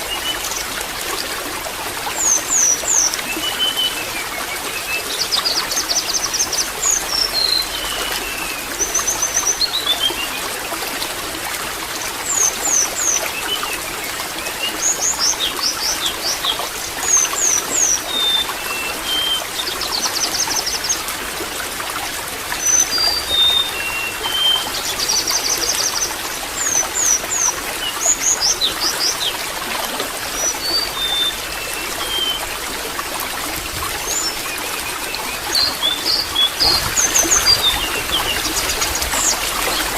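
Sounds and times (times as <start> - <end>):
water trickling and splashing: 0.0 - 39.9
birds singing: 2.2 - 10.4, 22.6 - 29.5, 30.2 - 32.6, 34.0 - 39.9.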